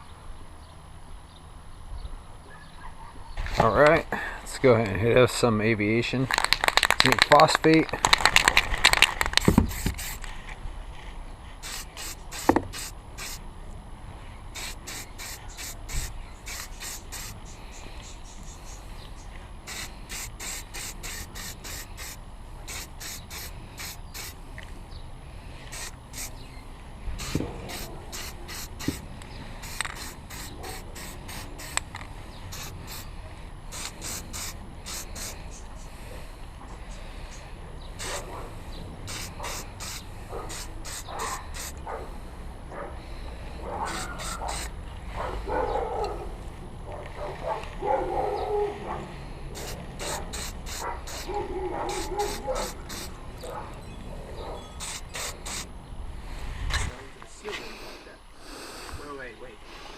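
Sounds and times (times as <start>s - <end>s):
aerosol can spraying: 8.9s - 10.3s, 11.6s - 13.4s, 14.6s - 17.8s, 19.6s - 24.4s, 25.7s - 26.4s, 27.2s - 31.9s, 32.5s - 33.1s, 33.7s - 35.7s, 38.0s - 38.3s, 39.0s - 41.8s, 43.9s - 44.7s, 49.5s - 53.2s, 54.8s - 55.7s.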